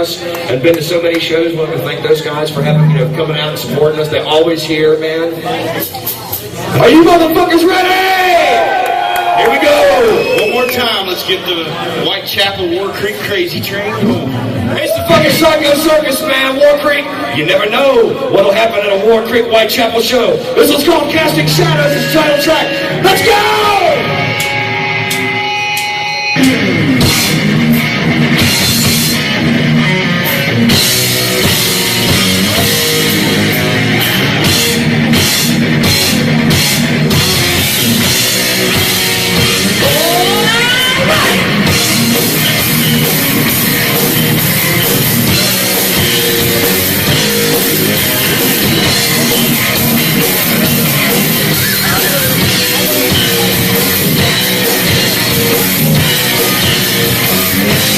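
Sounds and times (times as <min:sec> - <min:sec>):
heavy metal band playing live: 0:20.5 - 0:57.9
electric guitar sweeping up in pitch: 0:21.3 - 0:57.9.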